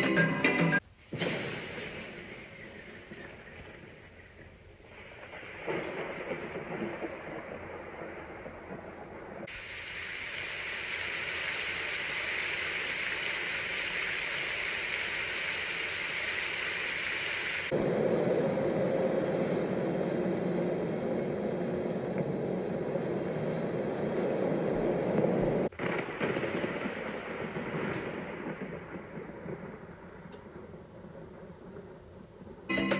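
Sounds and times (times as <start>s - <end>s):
low rushing noise: 9.4s - 26.0s
bright hiss: 9.4s - 26.3s.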